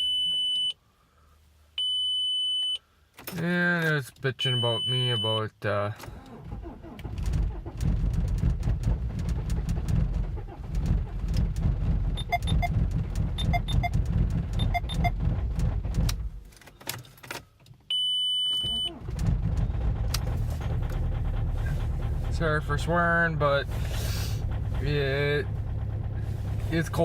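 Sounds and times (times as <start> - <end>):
diesel engine running roughly: 6.6 - 16.4, 18.9 - 27.0
short electronic beeps: 12.2 - 12.7, 13.4 - 14.0, 14.6 - 15.2
steady beep: 12.2 - 12.7, 13.4 - 14.0.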